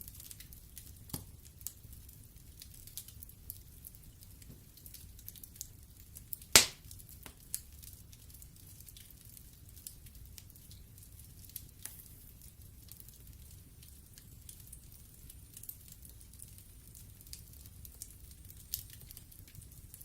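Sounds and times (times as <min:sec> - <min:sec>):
fire crackling: 0:00.0 - 0:20.0
loud log pop: 0:06.6 - 0:06.8.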